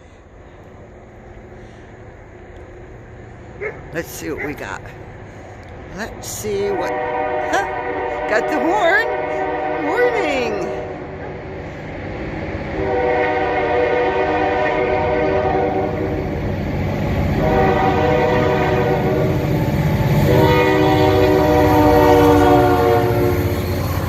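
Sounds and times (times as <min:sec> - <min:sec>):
locomotive rumble: 0:00.0 - 0:24.0
locomotive air horn blasts: 0:06.8 - 0:10.9, 0:12.8 - 0:16.1, 0:17.4 - 0:19.4, 0:20.2 - 0:23.5.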